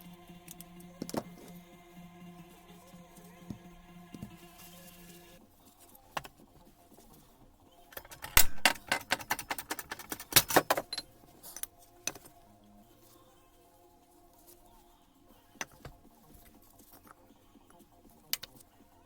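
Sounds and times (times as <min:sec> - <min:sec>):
metallic clinks and rattles: 0:07.9 - 0:12.5.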